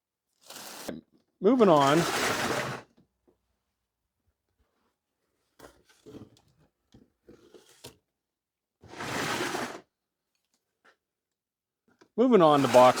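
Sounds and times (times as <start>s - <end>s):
cardboard scrape: 0.4s - 0.9s, 1.8s - 2.8s, 8.9s - 9.8s, 12.5s - 13.0s.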